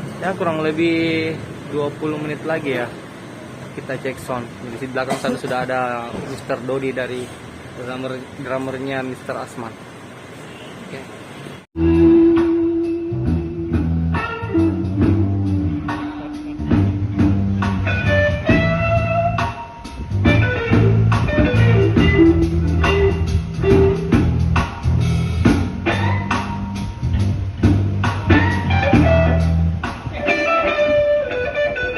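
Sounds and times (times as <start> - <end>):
drum kit steady beat: 11.8 - 31.2
bass guitar notes: 11.8 - 31.9
electric guitar melody: 11.8 - 31.9.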